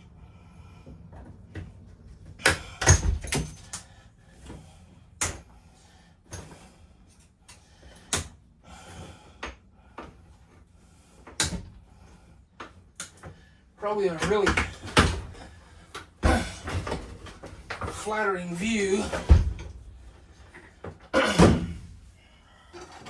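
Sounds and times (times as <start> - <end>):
interior fittings knocking and clattering: 1.0 - 3.9, 14.1 - 18.1, 19.0 - 21.9.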